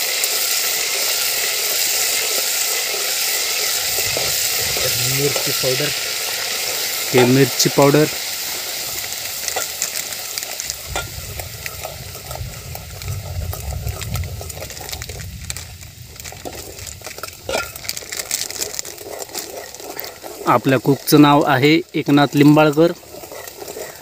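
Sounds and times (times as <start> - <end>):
oil and spices sizzling: 0.0 - 24.0
low rumble: 10.8 - 18.2.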